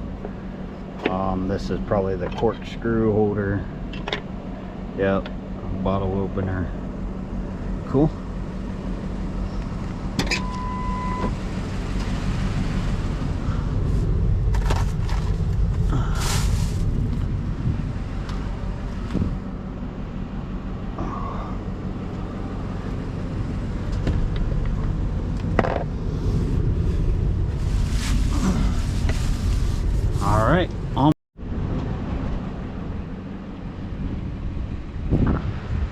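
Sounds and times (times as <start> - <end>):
vehicle engine rumbling: 0.0 - 35.9
short beep: 10.3 - 11.3
knocks and rattles: 23.8 - 26.0.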